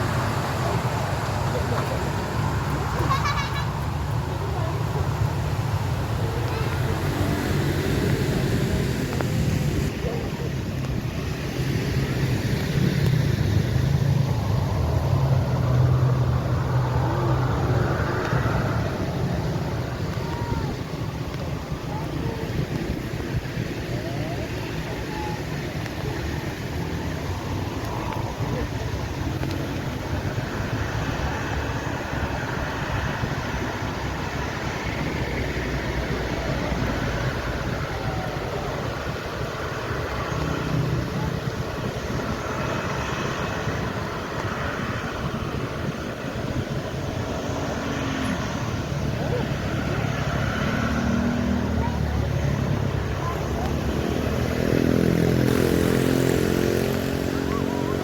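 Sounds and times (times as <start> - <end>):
jet engines idling: 0.0 - 50.4.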